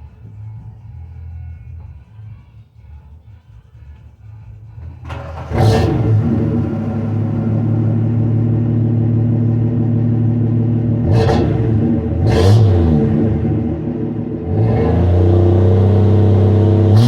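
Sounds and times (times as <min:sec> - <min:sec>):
car engine rumbling and revving: 0:04.8 - 0:17.0.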